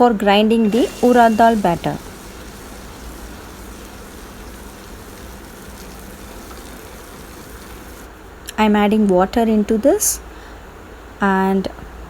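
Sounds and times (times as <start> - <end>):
wet grinder running: 0.6 - 8.2.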